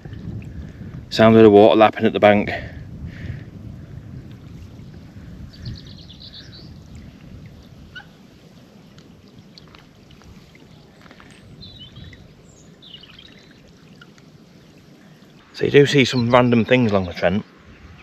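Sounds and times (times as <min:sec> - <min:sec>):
water lapping at riverbank: 0:00.0 - 0:01.1, 0:03.0 - 0:18.0
low wind rumble: 0:00.0 - 0:18.0
small birds chirping: 0:03.8 - 0:18.0.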